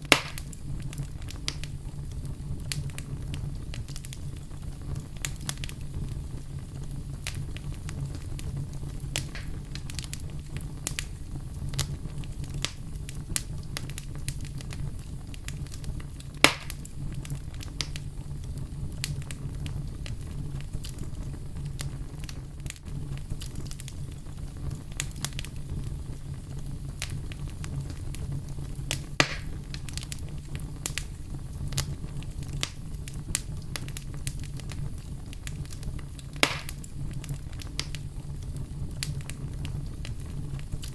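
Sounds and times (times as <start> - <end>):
loud fire pops: 0.0 - 40.9
wood fire crackling: 0.0 - 40.9.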